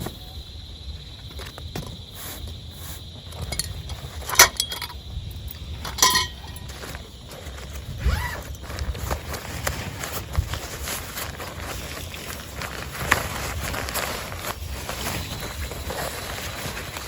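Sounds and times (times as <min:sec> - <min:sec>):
metallic clinks: 0:03.4 - 0:07.0
gear rustling: 0:05.8 - 0:07.7.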